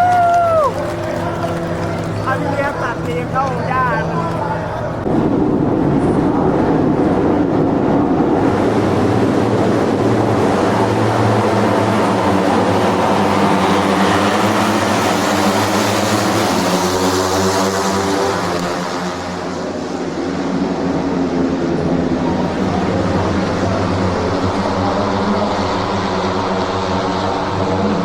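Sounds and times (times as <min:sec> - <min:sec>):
wind noise: 0:00.0 - 0:17.1
motorcycle engine running: 0:00.0 - 0:20.2, 0:21.1 - 0:28.0.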